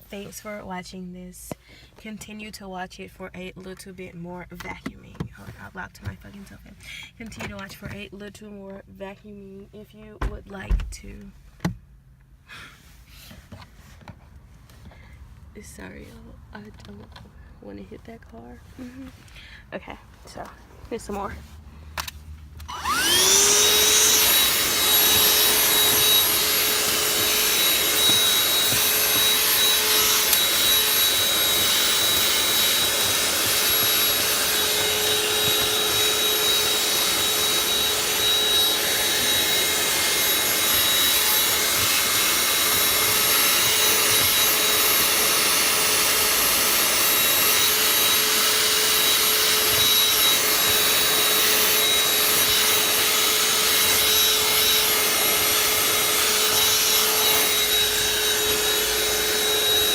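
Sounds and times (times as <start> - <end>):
vacuum cleaner whine: 22.0 - 59.9.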